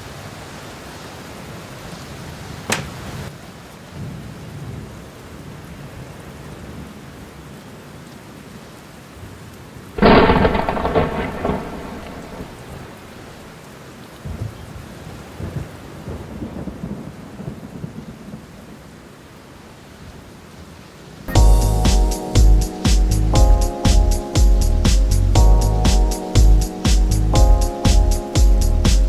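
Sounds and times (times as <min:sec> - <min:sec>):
rain hiss: 0:00.0 - 0:29.0
thunder cracking and rumbling: 0:10.0 - 0:13.5.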